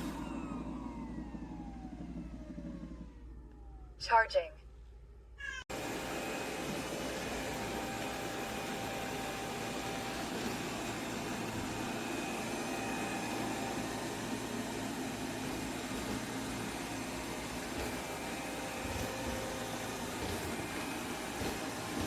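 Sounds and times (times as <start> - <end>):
robot vacuum suction noise: 5.8 - 22.0.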